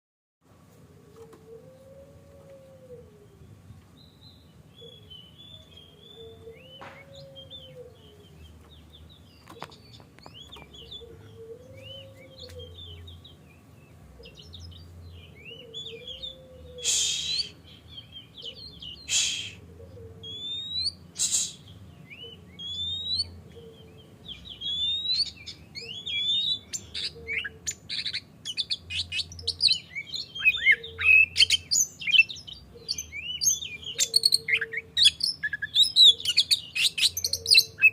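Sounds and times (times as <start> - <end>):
bird singing: 1.1 - 37.9
harsh bird chattering calls: 15.5 - 17.8, 18.4 - 23.4, 24.4 - 37.9.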